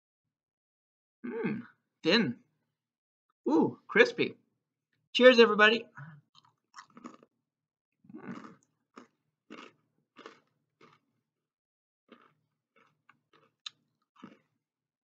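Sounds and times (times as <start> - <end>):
person crunching crispy snack: 6.4 - 7.3, 8.1 - 11.1, 12.1 - 14.6.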